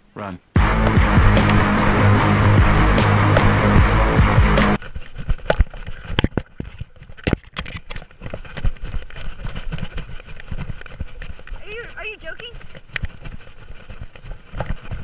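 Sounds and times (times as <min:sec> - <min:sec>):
running footsteps on ground: 0:00.6 - 0:15.0
microphone jostling: 0:04.8 - 0:15.0.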